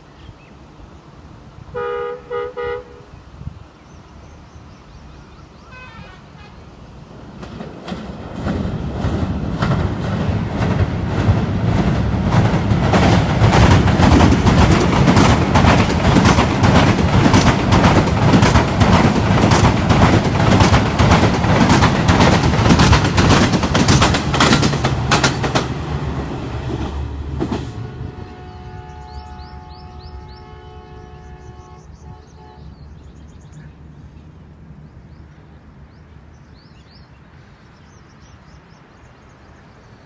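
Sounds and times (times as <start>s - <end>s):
locomotive engine rumble: 6.2s - 32.7s
train wheels clattering on bridge: 7.2s - 28.4s.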